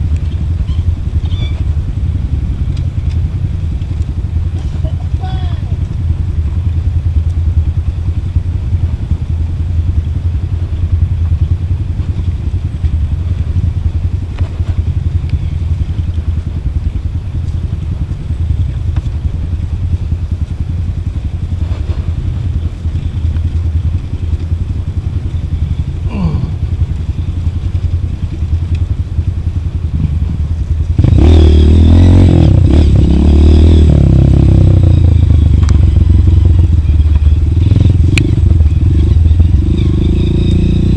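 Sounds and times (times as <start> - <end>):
motorcycle engine at low revs: 0.0 - 40.9
clattering and scraping over ground: 21.6 - 22.3.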